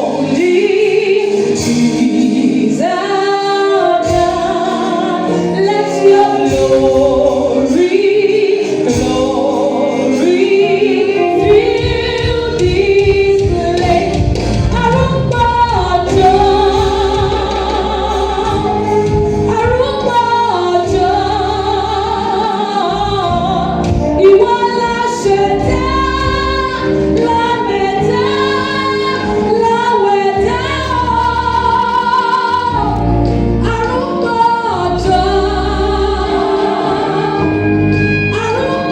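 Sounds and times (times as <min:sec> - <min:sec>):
gospel choir singing: 0:00.0 - 0:38.9
steady bass line: 0:08.9 - 0:38.9.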